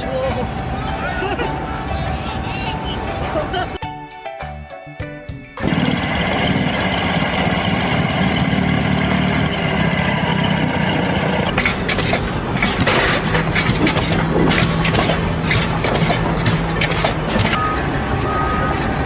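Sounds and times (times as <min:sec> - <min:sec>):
sharp clattering knocks: 0:05.6 - 0:17.6
heavy engine running: 0:05.6 - 0:19.0.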